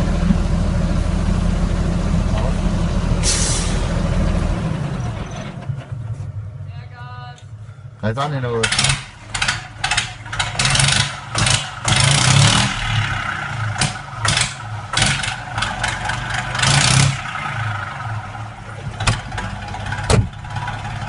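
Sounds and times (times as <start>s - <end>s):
tractor diesel engine revving: 0.0s - 6.6s, 8.4s - 21.0s.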